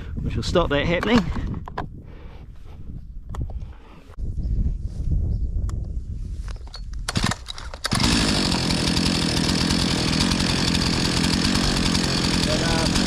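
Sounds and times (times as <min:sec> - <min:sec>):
chainsaw engine idling: 0:07.2 - 0:13.0.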